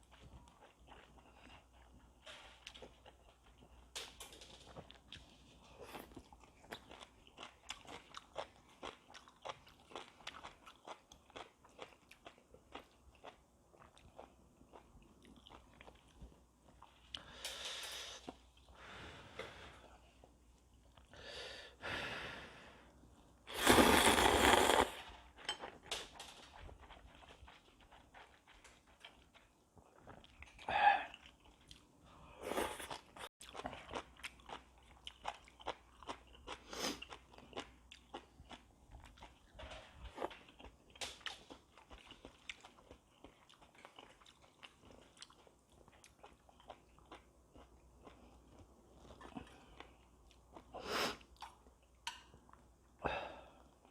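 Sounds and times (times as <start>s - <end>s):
person slurping noodles: 23.5s - 25.1s
wet chewing and mouth smacks: 25.4s - 31.9s, 32.8s - 52.6s.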